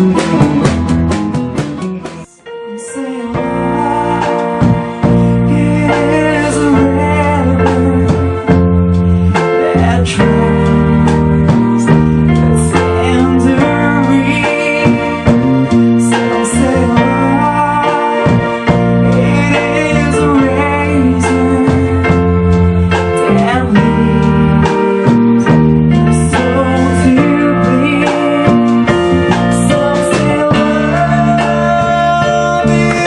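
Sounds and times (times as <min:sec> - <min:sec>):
band playing with keyboard: 0:00.0 - 0:33.0
person singing: 0:02.0 - 0:33.0.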